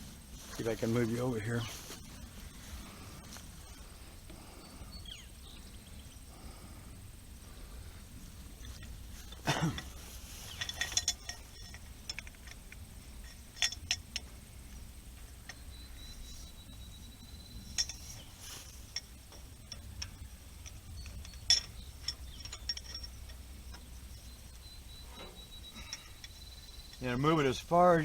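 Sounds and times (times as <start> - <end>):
wrench clinking on metal bolts: 8.6 - 28.0.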